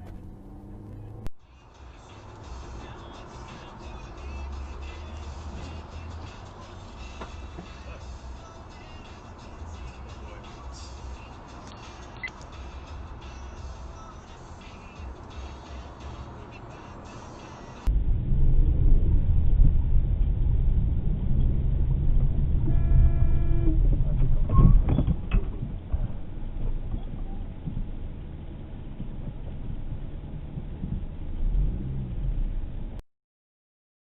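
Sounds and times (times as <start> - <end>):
car driving rumble: 0.0 - 33.0
car horn honking: 22.6 - 23.8.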